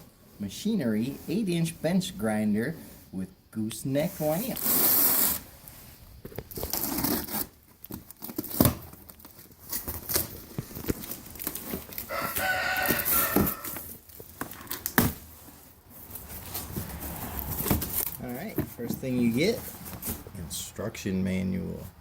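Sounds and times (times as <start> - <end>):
tape and cardboard tearing: 4.4 - 20.3
packaging rustling and knocking: 6.2 - 20.4.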